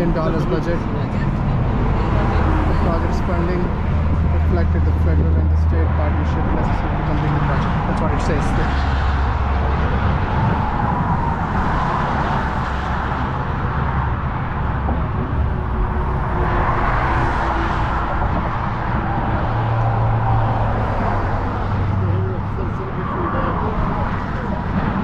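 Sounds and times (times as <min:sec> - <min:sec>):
road traffic rumble: 0:00.0 - 0:25.0
vehicles passing: 0:00.0 - 0:25.0.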